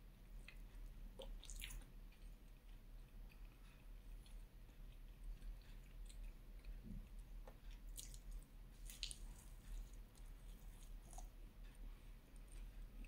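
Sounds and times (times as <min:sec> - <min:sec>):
chewing soft food: 0:00.0 - 0:13.0
wet mouth clicks and smacks: 0:01.2 - 0:01.9.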